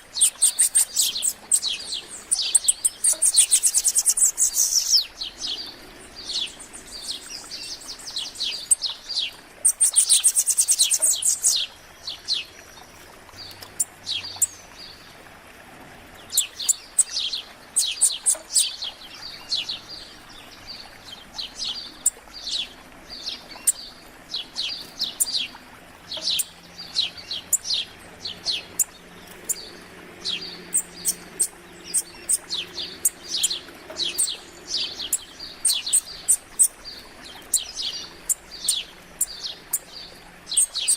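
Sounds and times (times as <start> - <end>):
songbirds chirping and singing: 0.0 - 15.0, 16.1 - 40.9
fast bird trill: 0.1 - 5.0.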